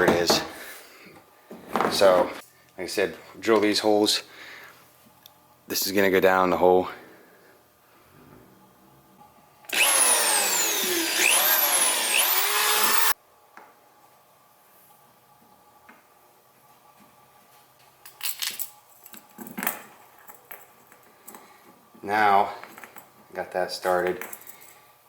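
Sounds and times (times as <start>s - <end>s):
power drill into plastic: 9.7s - 13.2s.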